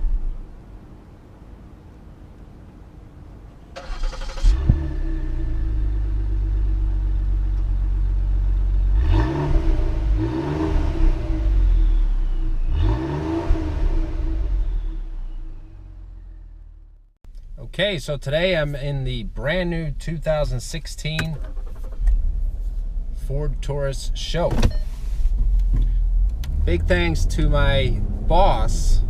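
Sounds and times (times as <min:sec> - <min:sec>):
car engine cranking and starting: 0:03.7 - 0:16.3, 0:20.1 - 0:29.0
car engine idling and revving: 0:03.8 - 0:17.5, 0:19.8 - 0:29.0.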